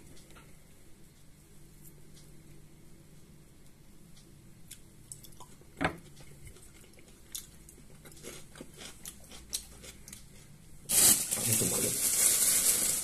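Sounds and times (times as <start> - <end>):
person chewing food: 4.6 - 10.7.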